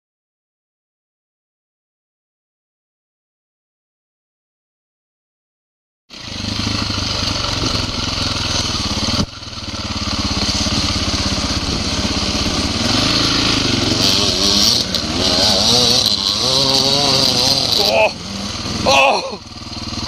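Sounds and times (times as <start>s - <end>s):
dirt bike engine revving: 6.1s - 20.0s.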